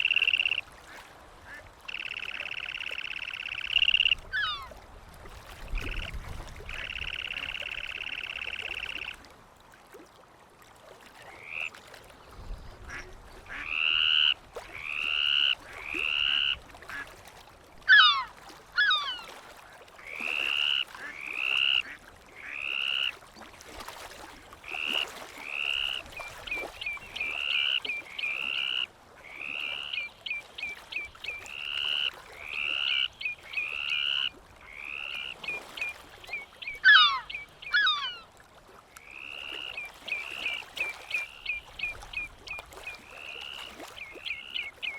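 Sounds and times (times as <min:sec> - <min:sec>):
bird calling: 0:00.0 - 0:00.6, 0:01.8 - 0:04.7, 0:06.7 - 0:09.2, 0:17.8 - 0:19.4, 0:24.8 - 0:38.3, 0:39.0 - 0:44.9.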